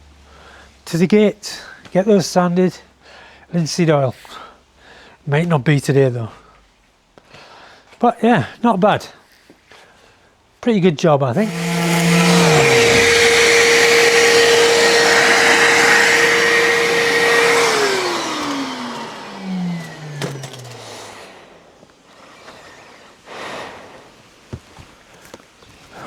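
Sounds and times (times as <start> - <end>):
electric motor whining: 11.4 - 21.9.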